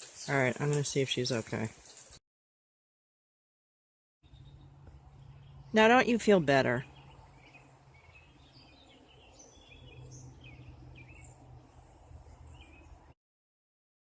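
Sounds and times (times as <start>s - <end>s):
small birds chirping: 0.0s - 2.2s, 4.2s - 13.2s.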